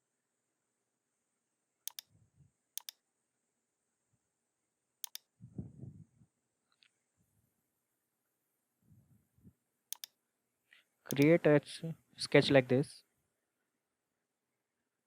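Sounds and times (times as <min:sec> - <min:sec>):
mouse button clicking: 0:01.9 - 0:02.1, 0:05.0 - 0:05.2, 0:09.9 - 0:10.1, 0:11.1 - 0:11.3.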